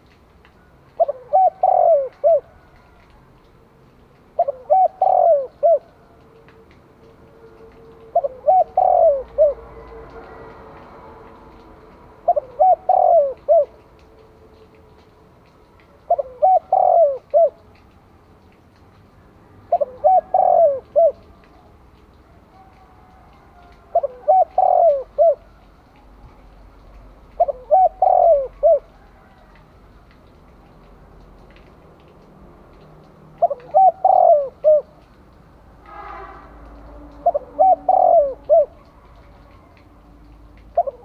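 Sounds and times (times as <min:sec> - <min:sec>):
dove cooing: 0:00.9 - 0:03.1, 0:04.4 - 0:06.2, 0:07.6 - 0:10.5, 0:12.2 - 0:13.8, 0:16.0 - 0:17.7, 0:19.7 - 0:21.8, 0:22.5 - 0:25.7, 0:27.3 - 0:29.6, 0:33.4 - 0:35.1, 0:37.0 - 0:41.0.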